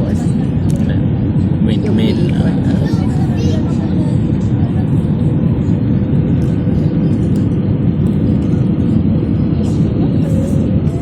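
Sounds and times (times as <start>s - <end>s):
airliner engine drone: 0.0s - 11.0s
rush of air in cabin: 0.0s - 11.0s.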